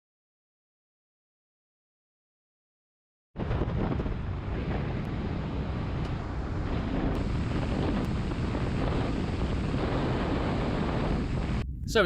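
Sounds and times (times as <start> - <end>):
wind buffeting microphone: 3.4 - 12.0.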